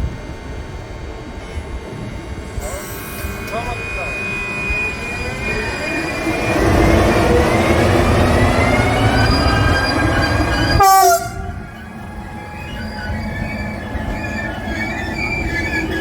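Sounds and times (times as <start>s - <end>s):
train rumble and wheel noise: 0.0s - 16.0s
rising whining tones: 1.5s - 16.0s
train horn: 10.7s - 13.4s.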